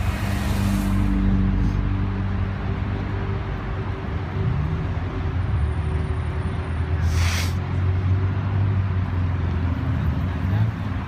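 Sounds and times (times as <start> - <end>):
short burst of hiss: 7.0 - 7.6.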